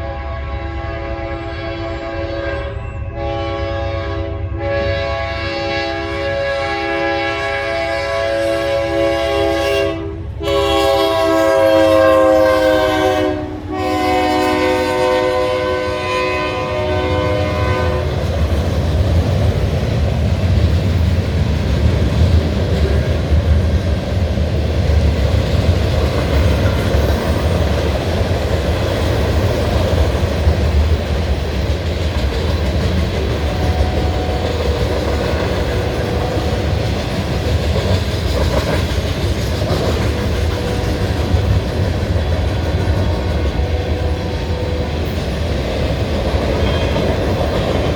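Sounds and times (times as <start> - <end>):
locomotive air horn chord: 0.0 - 18.2, 33.4 - 34.8, 35.7 - 36.8, 42.2 - 45.2
train wheels on rails: 5.7 - 47.9.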